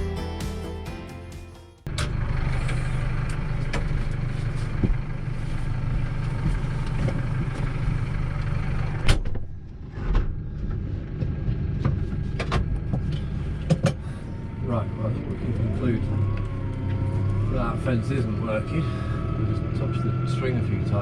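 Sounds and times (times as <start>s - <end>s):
sharp clicks and knocks: 10.1s - 14.0s.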